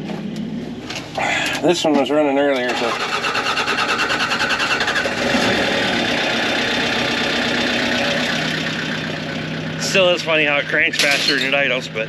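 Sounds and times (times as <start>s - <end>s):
tractor engine idling: 0.2s - 12.0s
tractor engine cranking: 2.4s - 9.0s.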